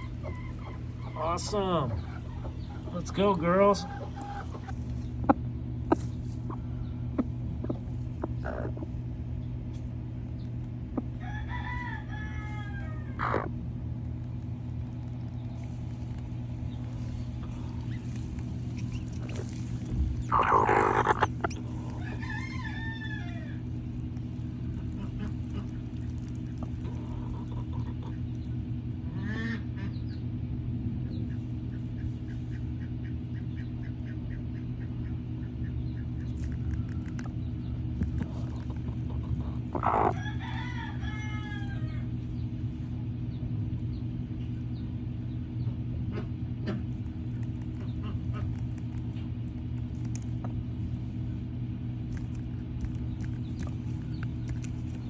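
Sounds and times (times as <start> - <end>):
poultry calling: 0.0 - 9.0, 11.2 - 13.6, 17.0 - 23.7, 29.1 - 29.9, 38.2 - 42.1
steady low hum: 0.0 - 55.0.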